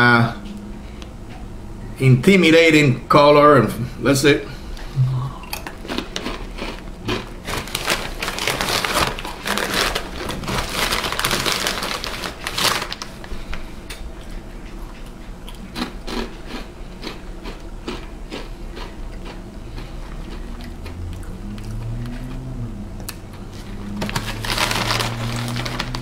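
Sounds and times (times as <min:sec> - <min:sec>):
person crunching chips: 0:05.5 - 0:13.2, 0:15.5 - 0:22.0, 0:23.6 - 0:26.0.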